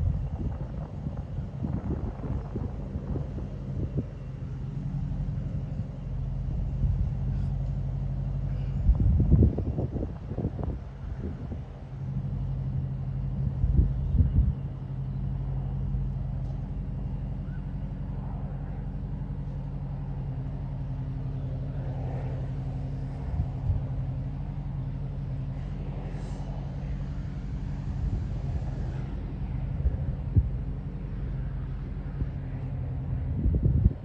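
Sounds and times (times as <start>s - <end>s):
air noise: 0.0s - 34.0s
low engine drone: 0.0s - 34.0s.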